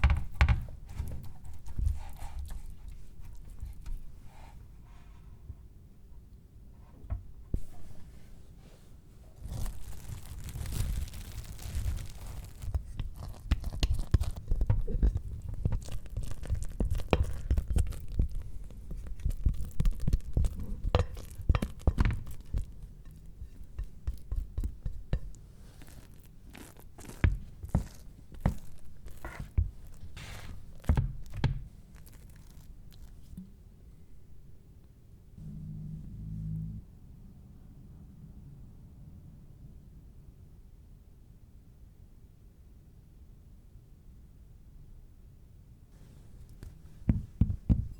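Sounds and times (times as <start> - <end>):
low hum: 35.4 - 39.7.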